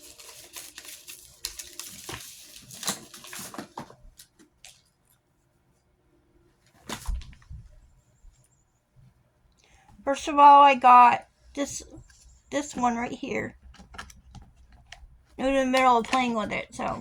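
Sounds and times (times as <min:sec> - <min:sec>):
packaging rustling and crinkling: 0:00.0 - 0:05.0, 0:06.7 - 0:07.8.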